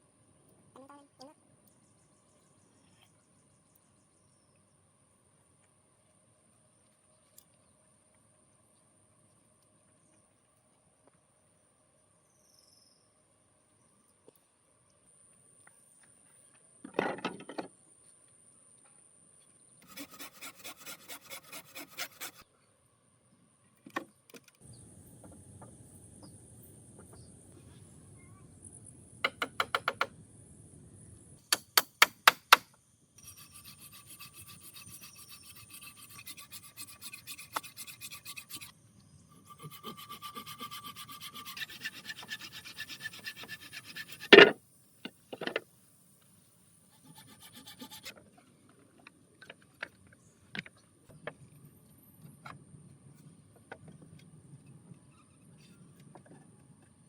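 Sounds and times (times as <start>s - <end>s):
back-and-forth scraping strokes: 19.8s - 22.4s, 33.2s - 44.6s, 46.9s - 48.2s.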